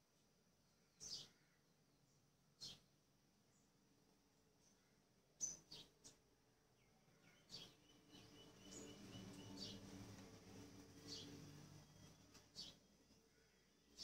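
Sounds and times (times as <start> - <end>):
faint low hum: 0.0 - 14.0
high bird chirps: 7.2 - 10.0.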